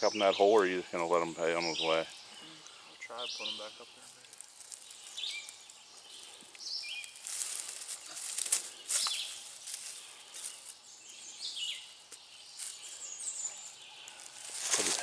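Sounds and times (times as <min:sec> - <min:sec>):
birds singing: 0:00.0 - 0:15.0
leaf litter rustling and crunching: 0:03.6 - 0:15.0
twigs snapping: 0:04.2 - 0:05.8, 0:06.4 - 0:10.8, 0:14.0 - 0:15.0.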